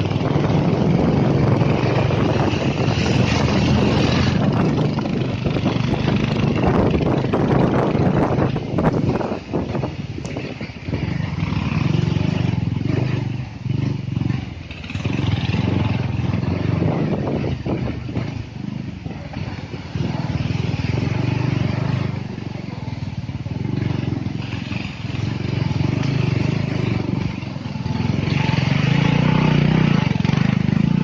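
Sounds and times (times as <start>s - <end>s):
motorcycle engine under load: 0.0s - 31.0s.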